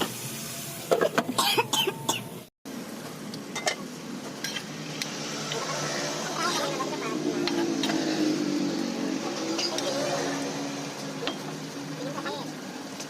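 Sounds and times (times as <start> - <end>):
utensils clinking against pan: 4.4 - 4.7.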